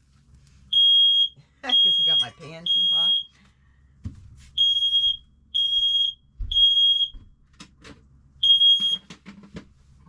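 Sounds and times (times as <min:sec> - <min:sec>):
smoke alarm beeping: 0:00.7 - 0:03.4, 0:04.6 - 0:07.2, 0:08.4 - 0:09.1.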